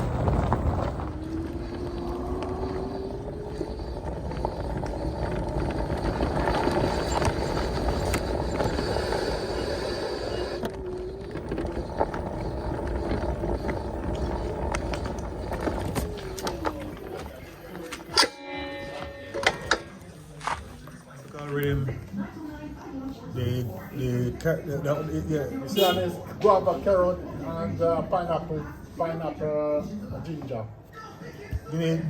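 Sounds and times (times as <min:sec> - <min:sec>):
electric motor whine: 0:00.0 - 0:17.8
wind: 0:00.0 - 0:18.3
road rumble: 0:00.0 - 0:30.2.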